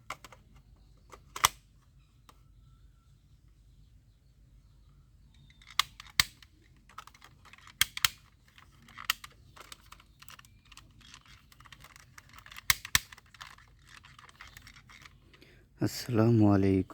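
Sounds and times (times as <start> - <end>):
plastic toy guns clicking: 1.1 - 1.6, 5.4 - 15.4.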